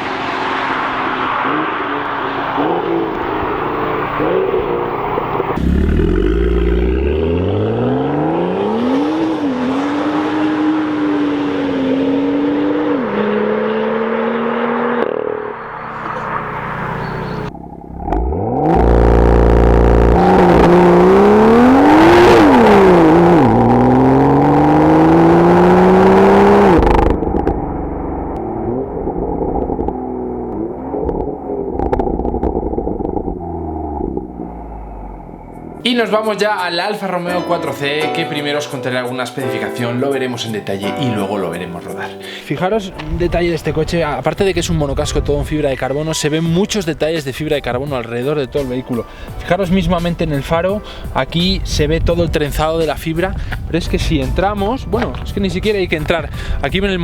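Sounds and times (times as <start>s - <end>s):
car engine accelerating hard: 0.0s - 35.8s
road noise: 0.0s - 57.0s.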